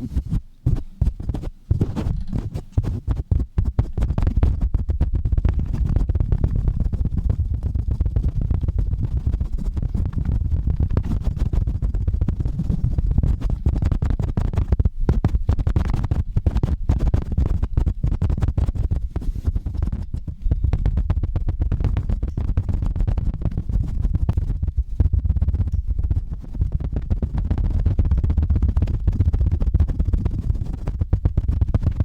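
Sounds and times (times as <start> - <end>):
microphone handling rumble: 0.0 - 32.0
scratching on microphone: 0.0 - 32.0.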